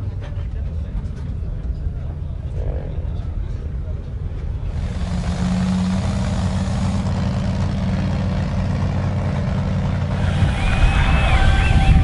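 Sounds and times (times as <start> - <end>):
race engine idling: 3.0 - 12.0.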